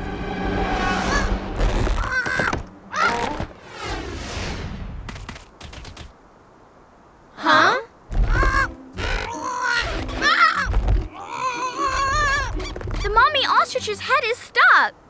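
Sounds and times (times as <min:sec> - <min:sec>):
background music: 0:00.0 - 0:03.5, 0:08.1 - 0:14.6
cartoon impacts: 0:08.1 - 0:13.2.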